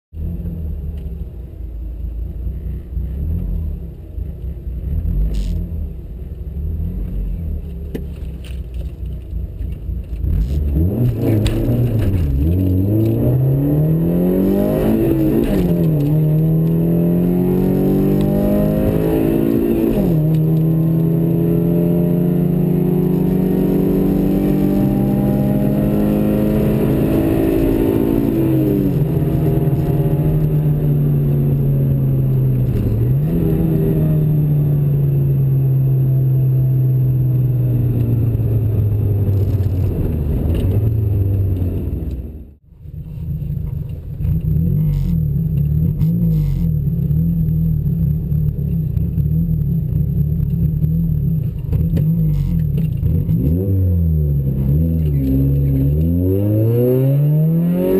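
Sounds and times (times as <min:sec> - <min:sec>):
car engine at full throttle: 0:00.1 - 0:57.9.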